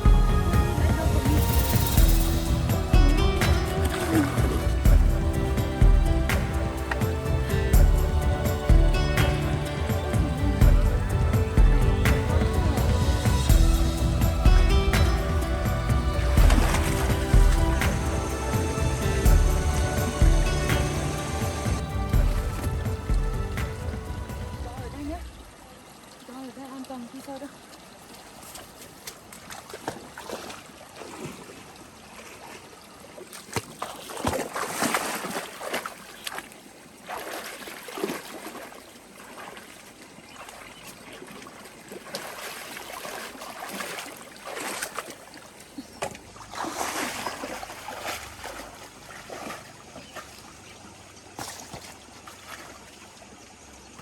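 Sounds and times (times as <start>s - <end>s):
running water trickle: 0.0s - 54.0s
water splashing and sloshing: 0.0s - 54.0s.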